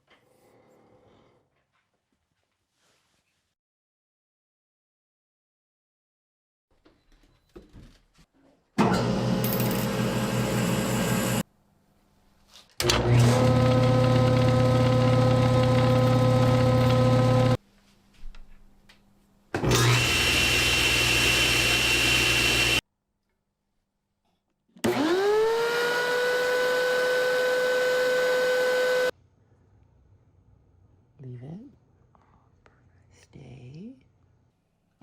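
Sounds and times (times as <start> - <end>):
woodworking machine whining hum: 8.8 - 11.4, 12.8 - 17.6, 19.6 - 22.8, 24.9 - 29.1
motor spinning up: 9.0 - 11.4, 12.8 - 17.6, 19.6 - 22.8, 24.8 - 29.1.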